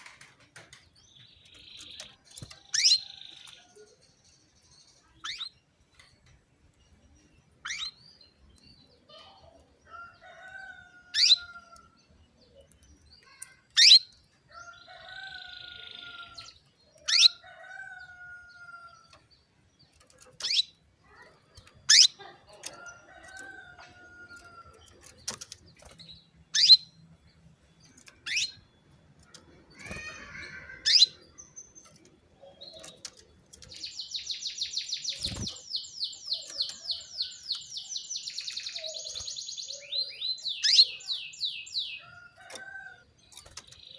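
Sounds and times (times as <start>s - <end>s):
canary chirping: 1.1s - 5.7s, 6.9s - 43.9s.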